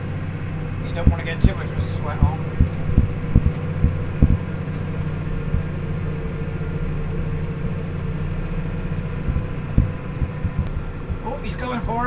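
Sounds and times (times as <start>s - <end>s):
vehicle engine running steadily: 0.0s - 12.0s
knocks: 2.2s - 4.7s.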